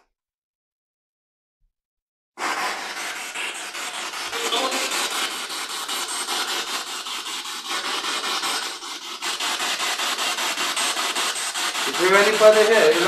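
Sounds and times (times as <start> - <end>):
pulsing radio static: 4.3 - 5.2.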